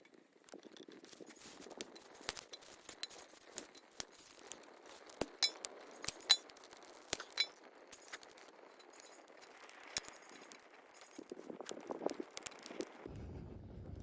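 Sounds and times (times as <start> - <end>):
light metallic clinks: 0.5 - 6.5, 7.1 - 9.3.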